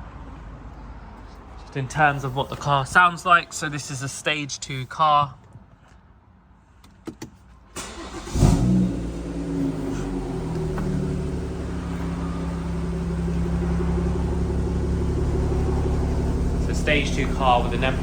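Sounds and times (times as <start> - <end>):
engine starter cranking: 7.8 - 11.1
car engine idling: 7.8 - 18.0.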